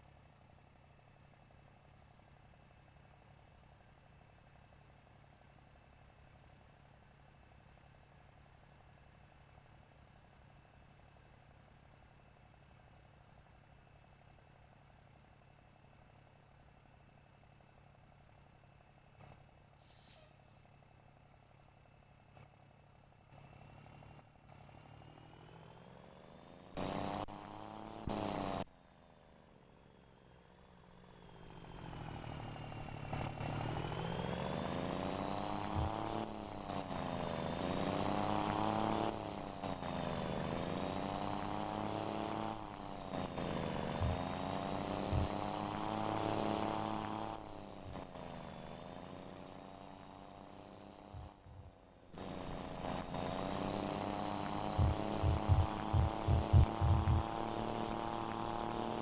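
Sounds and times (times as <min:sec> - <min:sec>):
diesel truck engine: 0:15.4 - 0:59.0.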